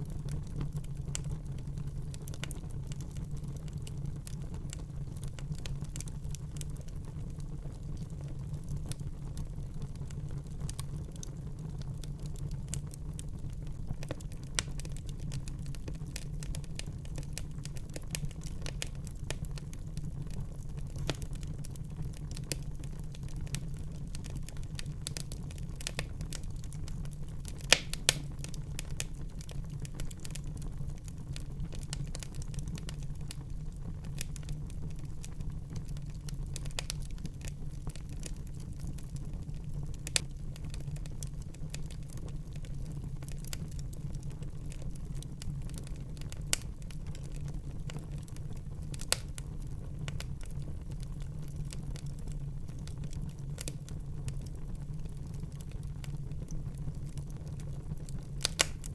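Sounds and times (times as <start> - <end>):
low rumble of flames: 0.0 - 58.9
wood fire crackling: 0.0 - 58.9
sharp fire pops: 27.5 - 29.1, 58.3 - 58.9.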